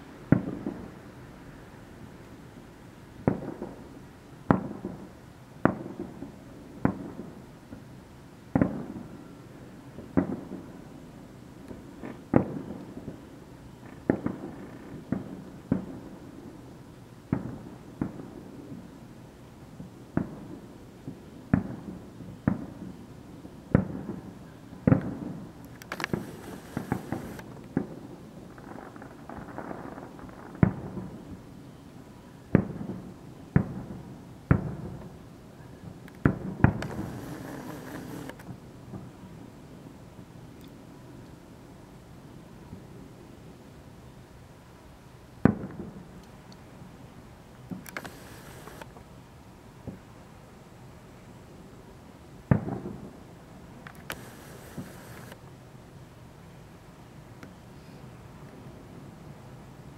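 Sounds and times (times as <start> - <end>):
high hiss: 25.7 - 27.5, 36.8 - 38.4, 47.7 - 48.9, 54.0 - 55.4
firework booms echoing: 26.0 - 28.0, 36.2 - 38.3.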